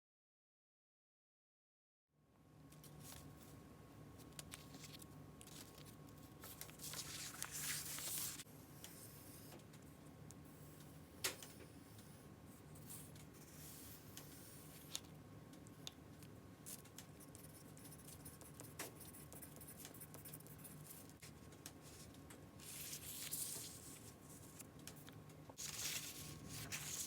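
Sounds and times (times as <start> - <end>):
faint steady hum: 2.2 - 27.0
paper being torn: 25.6 - 27.0.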